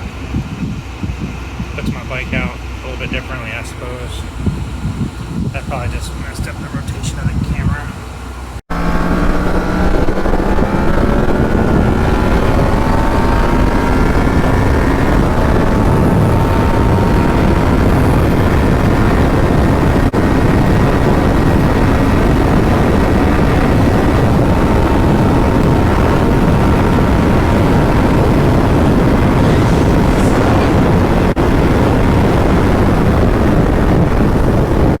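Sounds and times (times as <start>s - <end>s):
wind rush on microphone: 0.0s - 35.0s
motorcycle engine running: 8.7s - 34.7s.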